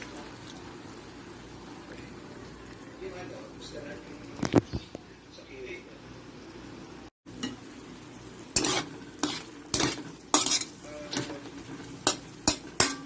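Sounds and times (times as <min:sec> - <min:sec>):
meat sizzling: 0:07.3 - 0:13.0
utensil scraping a pan: 0:08.5 - 0:13.0.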